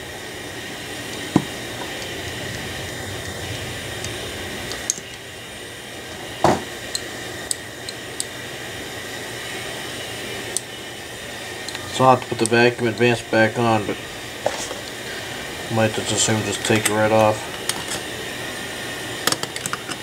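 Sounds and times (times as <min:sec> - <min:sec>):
steady fan hum: 0:00.0 - 0:20.0
loud knock on workbench: 0:06.4 - 0:06.7.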